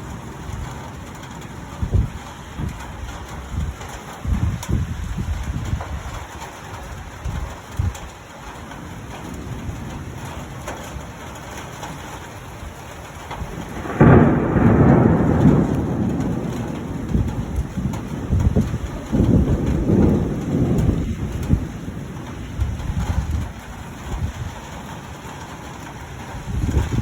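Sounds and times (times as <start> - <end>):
rain falling: 0.0 - 27.0
thunderclap rumbling: 0.0 - 27.0.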